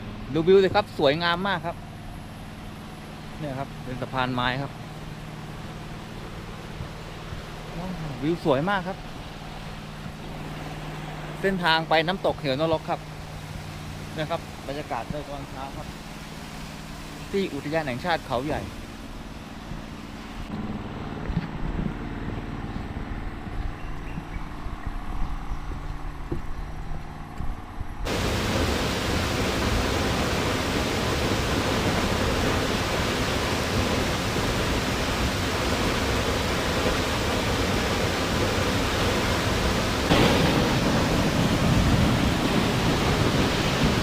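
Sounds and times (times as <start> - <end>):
waterfall rushing: 28.1 - 44.0.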